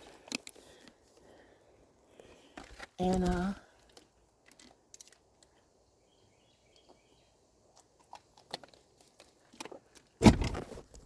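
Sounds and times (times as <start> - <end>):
faint bird chirps: 5.9 - 7.4.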